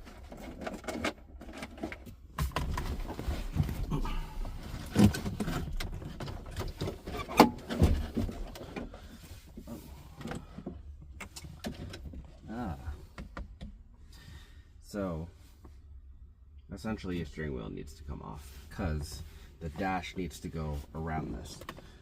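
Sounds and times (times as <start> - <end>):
rustling of wiring and trim: 0.0 - 13.8.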